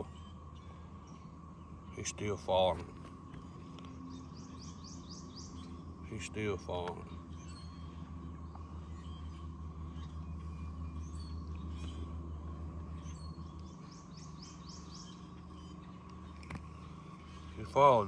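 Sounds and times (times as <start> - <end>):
birds chirping: 0.0 - 18.0
steady low hum: 0.0 - 18.0.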